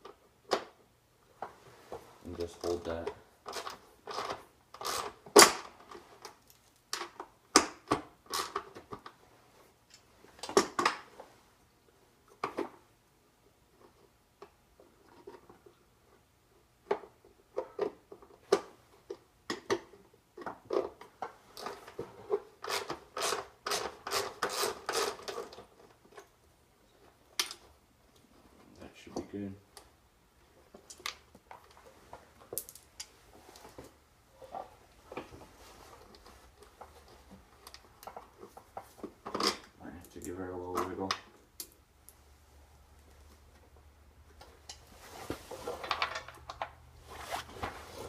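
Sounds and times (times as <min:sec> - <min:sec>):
hand tools clicking and scraping on metal: 0:13.8 - 0:26.4.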